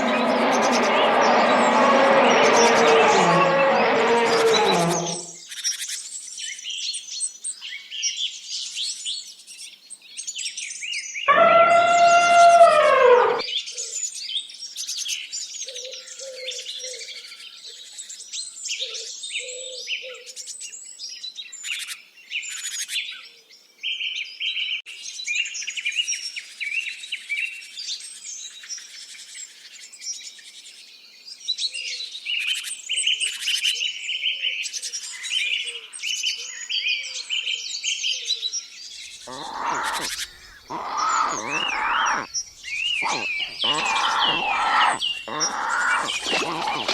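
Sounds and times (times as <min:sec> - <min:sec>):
birds chirping and singing: 0:00.0 - 0:05.4, 0:11.3 - 0:13.5, 0:39.3 - 0:46.9
coarse animal call: 0:00.0 - 0:05.4, 0:11.3 - 0:13.5, 0:39.3 - 0:42.3, 0:42.9 - 0:46.9.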